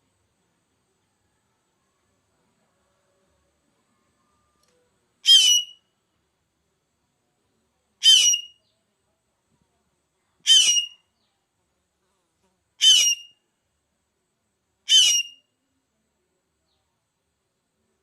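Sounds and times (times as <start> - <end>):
bird giving harsh calls: 5.3 - 5.8, 8.0 - 8.5, 10.5 - 11.0, 12.8 - 13.3, 14.9 - 15.4.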